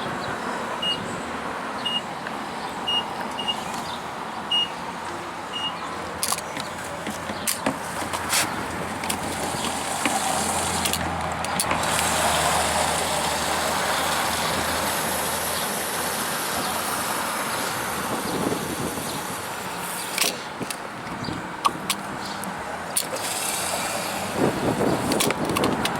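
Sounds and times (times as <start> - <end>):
sharp clicks and knocks: 6.2 - 10.2, 10.8 - 12.1, 25.1 - 25.9
engine running: 6.2 - 17.1.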